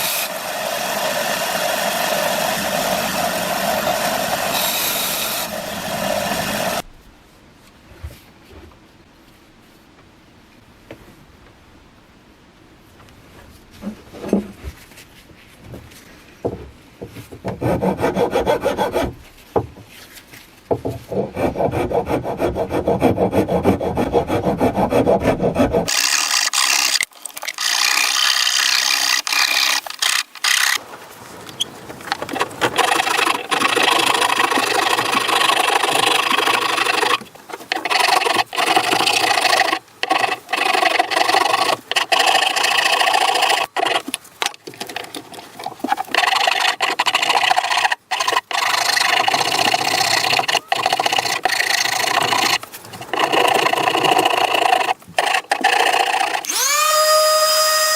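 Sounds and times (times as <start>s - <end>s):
rasp scraping wood: 0.0s - 6.8s, 17.2s - 19.4s, 20.7s - 27.0s, 32.0s - 56.8s
sawing wood: 0.0s - 6.8s, 17.4s - 19.4s, 20.7s - 30.8s, 32.0s - 57.9s.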